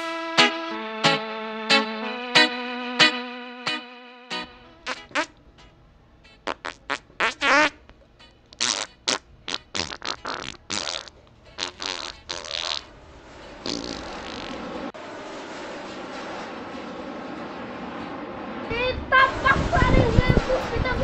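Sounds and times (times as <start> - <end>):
short farts: 4.8 - 5.3, 6.4 - 7.8, 8.6 - 12.9, 13.6 - 14.8
steady rushing noise: 12.8 - 21.0.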